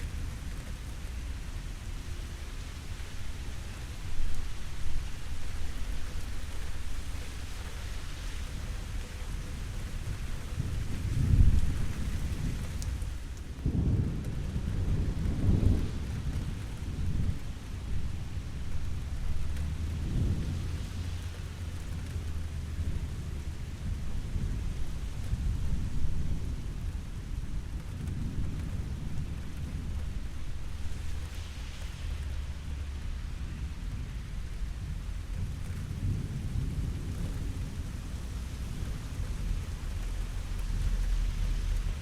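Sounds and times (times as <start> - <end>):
steady rain: 0.0 - 42.0
rolling thunder: 10.2 - 42.0.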